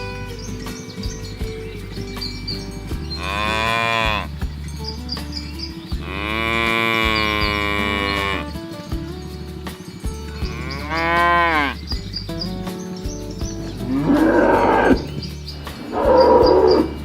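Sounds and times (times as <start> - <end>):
cattle mooing: 3.2 - 4.3, 6.0 - 8.5, 10.5 - 11.8, 13.8 - 15.2, 15.9 - 17.0.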